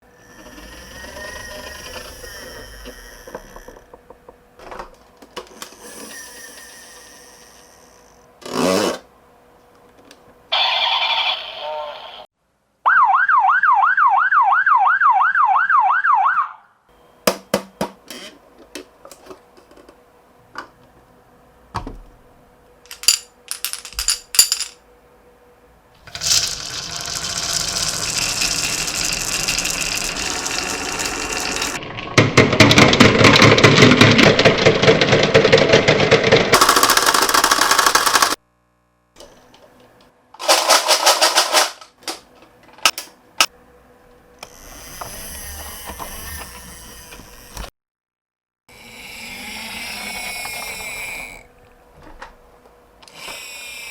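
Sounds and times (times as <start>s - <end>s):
toy siren warbling: 10.5s - 12.2s, 12.9s - 16.7s
marbles rolling down a marble run: 26.1s - 38.4s.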